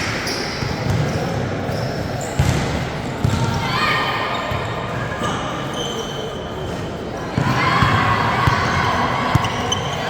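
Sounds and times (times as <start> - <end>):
basketball bouncing on court: 0.6 - 1.1, 2.4 - 3.6
crowd cheering and shouting: 7.4 - 9.7.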